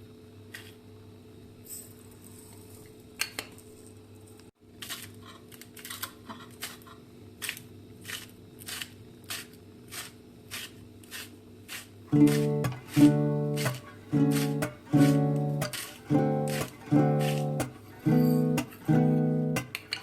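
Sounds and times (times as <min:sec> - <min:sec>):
knife cutting food: 0:05.8 - 0:18.9
steady low hum: 0:11.5 - 0:20.0.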